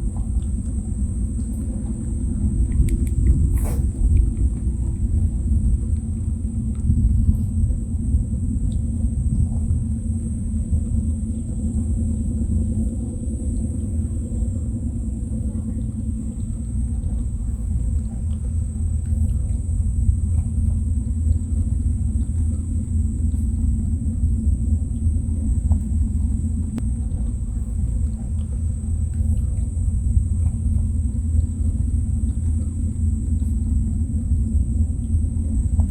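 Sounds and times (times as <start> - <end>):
wind rumble on microphone: 0.0 - 35.9
faint clicks: 2.6 - 5.3.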